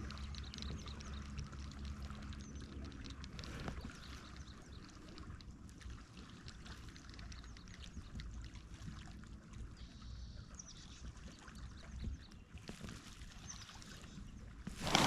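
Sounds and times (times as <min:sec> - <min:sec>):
faint small clicks: 0:00.0 - 0:09.1
water lapping against plastic hull: 0:00.0 - 0:09.7, 0:11.1 - 0:15.0.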